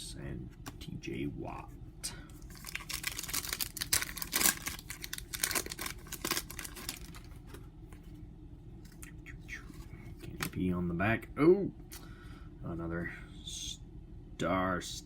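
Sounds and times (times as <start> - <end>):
plastic foil pack crinkling and tearing: 2.4 - 7.3.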